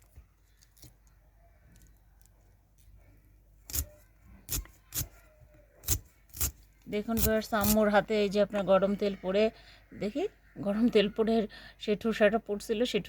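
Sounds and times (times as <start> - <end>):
knife chopping greens: 5.8 - 7.9.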